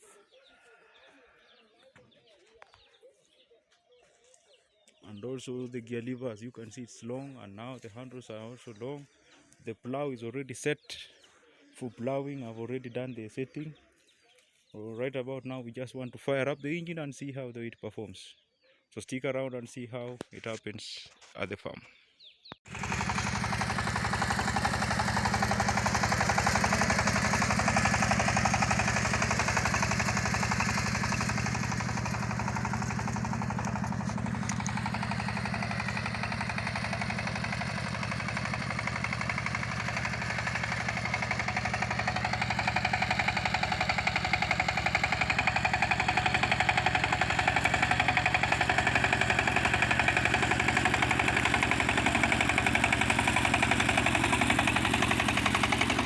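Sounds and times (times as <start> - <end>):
walking tractor engine running: 22.7 - 56.0.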